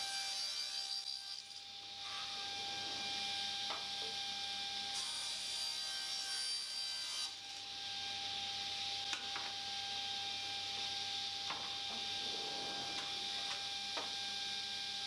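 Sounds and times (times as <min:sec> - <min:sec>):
power saw cutting plywood: 0:11.6 - 0:14.2.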